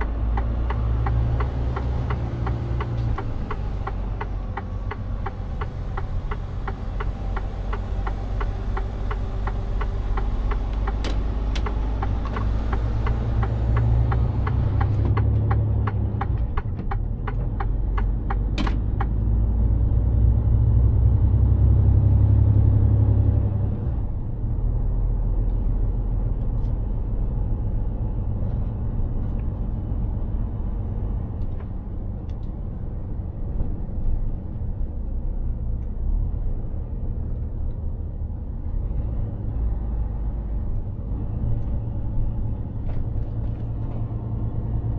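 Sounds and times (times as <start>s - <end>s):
turn signal ticking: 0.0s - 19.3s
truck diesel engine rumbling: 0.0s - 44.9s.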